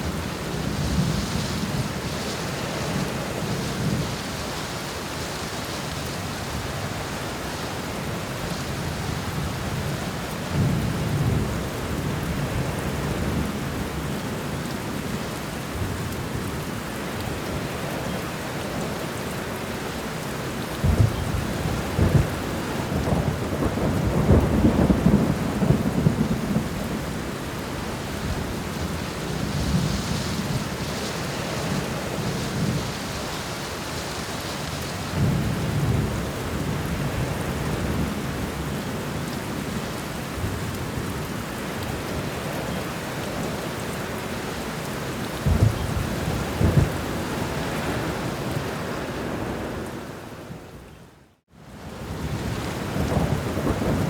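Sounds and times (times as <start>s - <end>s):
heavy rain: 0.0s - 54.0s
low rolls of thunder: 20.8s - 33.2s, 45.3s - 49.7s, 52.0s - 54.0s.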